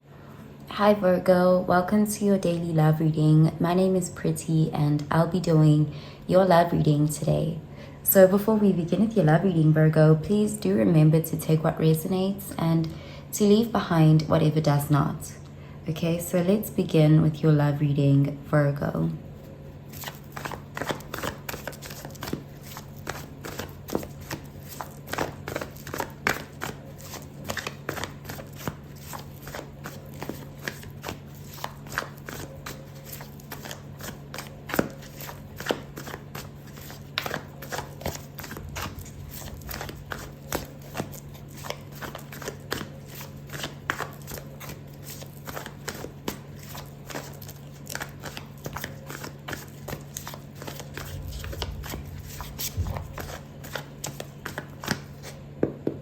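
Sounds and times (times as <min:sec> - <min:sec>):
steady low hum: 0:00.0 - 0:56.0
cards being shuffled: 0:19.7 - 0:55.4.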